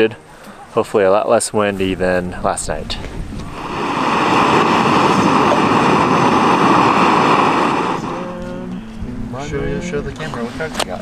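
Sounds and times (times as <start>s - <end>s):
strong wind gusting: 1.8s - 9.3s.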